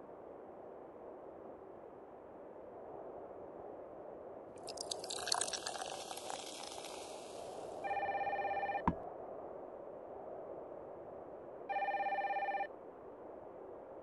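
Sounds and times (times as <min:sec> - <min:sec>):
mobile phone ringing: 0:07.9 - 0:09.0, 0:11.7 - 0:12.7.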